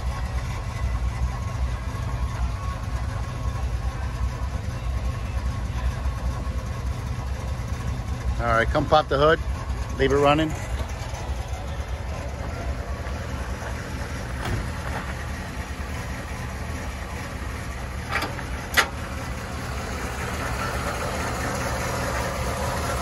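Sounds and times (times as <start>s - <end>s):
car engine idling: 0.0s - 23.0s
hood latch clicks: 18.1s - 19.0s.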